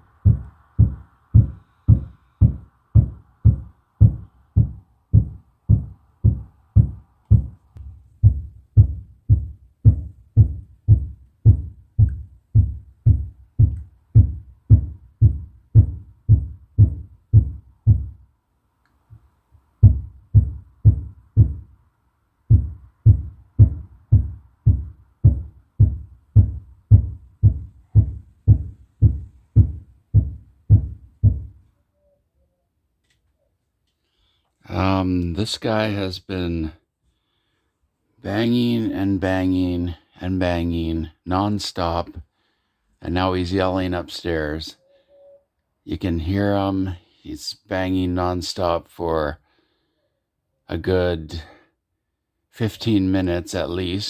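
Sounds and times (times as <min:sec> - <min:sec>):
dull banging through ceiling: 0:00.2 - 0:18.2, 0:22.5 - 0:31.6.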